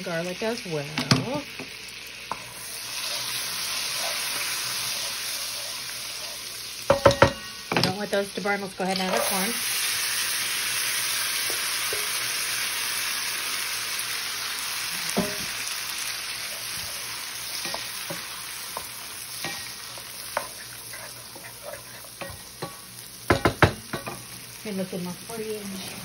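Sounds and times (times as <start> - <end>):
corn sizzling in a skillet: 0.0 - 26.0
spoon stirring and scraping: 2.3 - 7.6, 8.9 - 9.6, 16.3 - 24.2.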